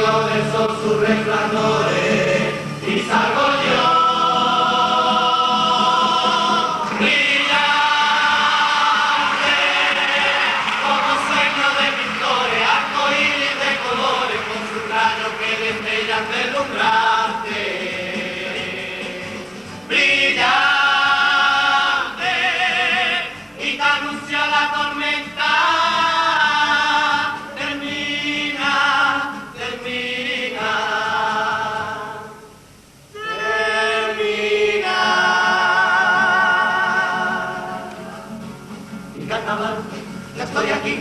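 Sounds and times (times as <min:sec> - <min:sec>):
choir singing with vibrato: 0:00.0 - 0:41.0.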